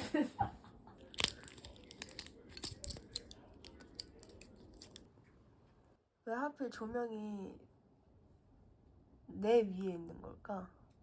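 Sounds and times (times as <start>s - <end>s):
plastic packaging crinkling: 1.0s - 5.0s.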